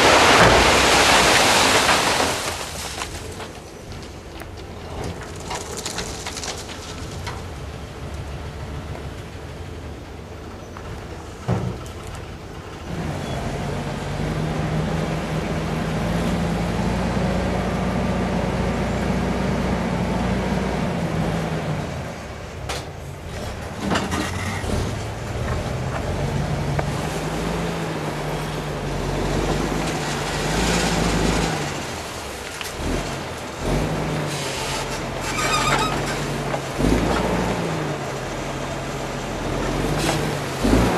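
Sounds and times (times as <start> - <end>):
heavy vehicle engine running: 1.6 - 40.9.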